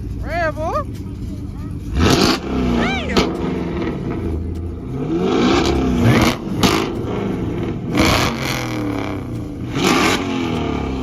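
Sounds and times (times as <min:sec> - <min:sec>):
car engine revving: 0:00.0 - 0:11.0
loud exhaust blasts: 0:00.0 - 0:11.0.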